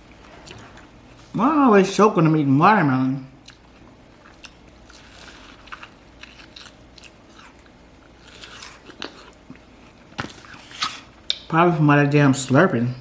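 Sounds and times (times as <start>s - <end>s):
person chewing watermelon: 3.3s - 11.4s.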